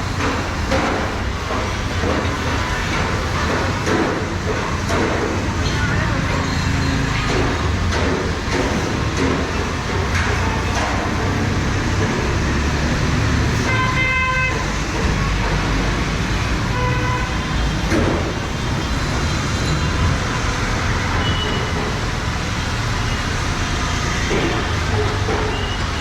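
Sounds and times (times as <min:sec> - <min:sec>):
city street traffic: 0:00.0 - 0:26.0
vehicle horn honking: 0:13.6 - 0:14.7, 0:16.7 - 0:17.5.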